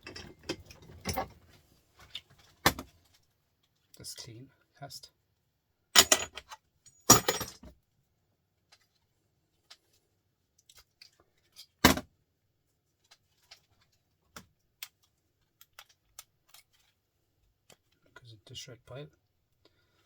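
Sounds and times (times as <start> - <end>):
metal scrap clattering onto pile: 7.1 - 7.6.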